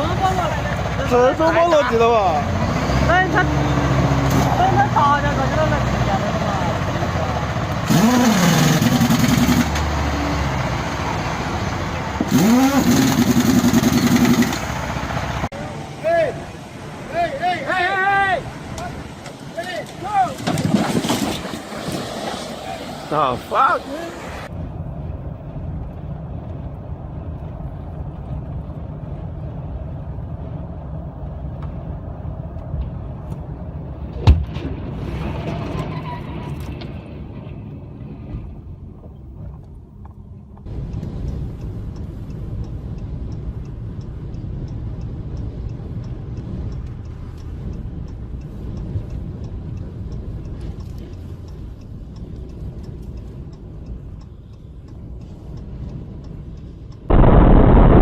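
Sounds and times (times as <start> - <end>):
heavy vehicle engine rumble: 0.0 - 17.6, 18.4 - 58.0
sharp bang: 57.1 - 58.0.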